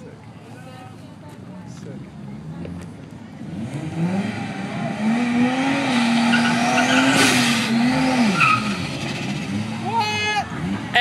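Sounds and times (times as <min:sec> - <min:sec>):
car engine revving: 0:03.4 - 0:11.0
tires squealing: 0:04.0 - 0:11.0.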